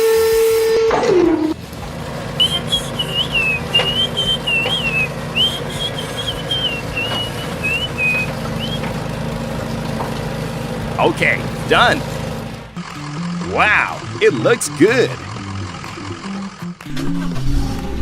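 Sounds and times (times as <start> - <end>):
person whistling a tune: 2.4 - 8.8.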